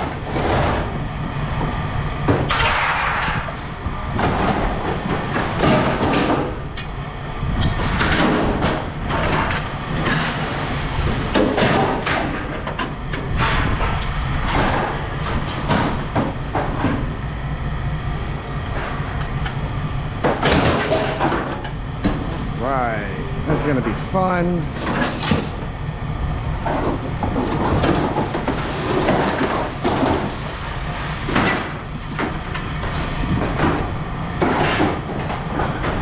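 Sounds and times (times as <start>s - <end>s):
scrap metal clanking and scraping: 7.7s - 17.2s, 20.2s - 22.5s, 24.7s - 25.6s, 26.6s - 36.0s.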